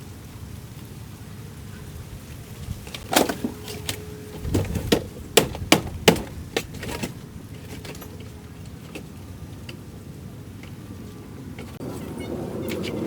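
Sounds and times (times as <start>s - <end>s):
steady low hiss: 0.0s - 12.6s
sharp knocks and clicks: 4.6s - 8.1s.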